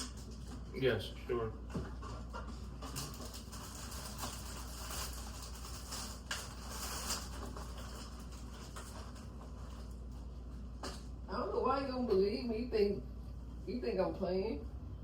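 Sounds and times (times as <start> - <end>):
soft rustling and handling noise: 1.7 - 11.2.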